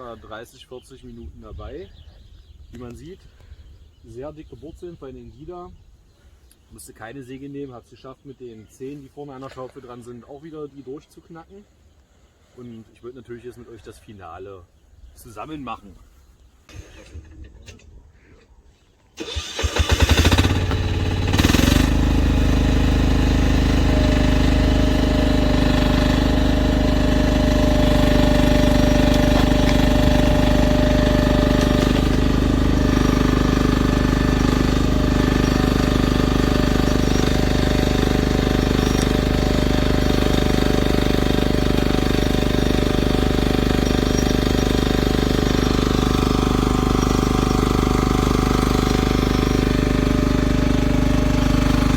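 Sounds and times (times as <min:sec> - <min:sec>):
excavator engine starting: 0:16.7 - 0:18.0, 0:19.2 - 0:51.9.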